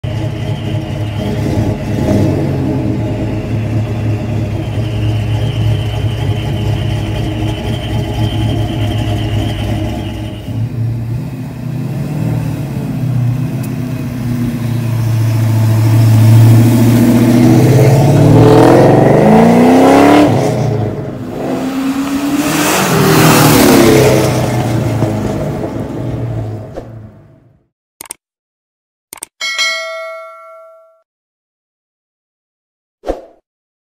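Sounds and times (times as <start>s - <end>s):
car engine revving: 0.0s - 27.2s.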